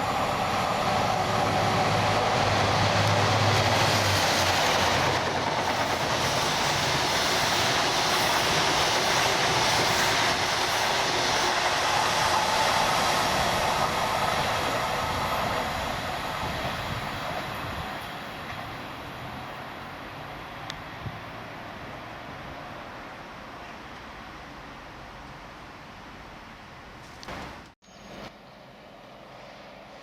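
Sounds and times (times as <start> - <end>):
train running on rails: 0.0 - 30.0.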